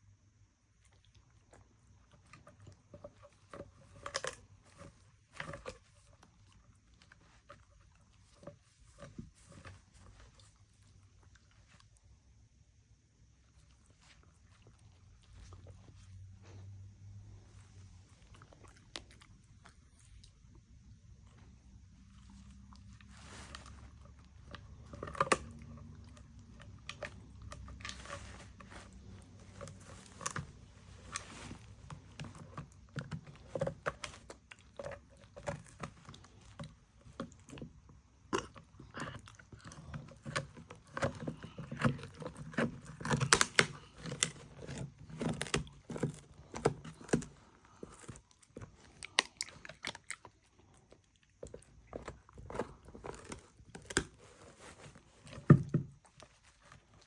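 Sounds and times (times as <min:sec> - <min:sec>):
dog chewing food: 0:13.5 - 0:57.0.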